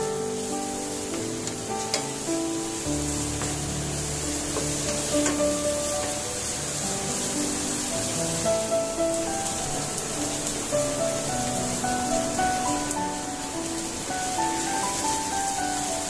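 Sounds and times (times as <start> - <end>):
paste sizzling in oil: 0.0 - 16.0
soft background music: 0.0 - 16.0
spatula knocking on pan: 4.5 - 6.2.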